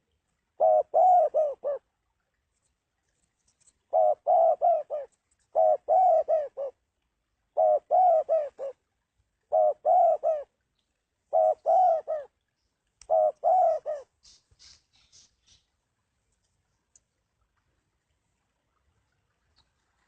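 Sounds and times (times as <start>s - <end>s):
dove cooing: 0.6s - 1.9s, 3.9s - 6.8s, 7.6s - 8.8s, 9.5s - 10.5s, 11.3s - 12.4s, 13.1s - 14.4s.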